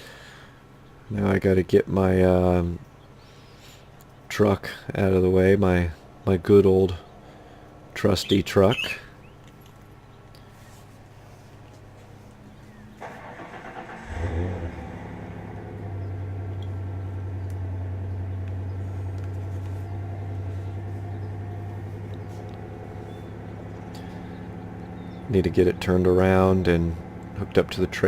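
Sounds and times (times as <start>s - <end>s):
truck engine cranking and idling: 12.4s - 28.0s.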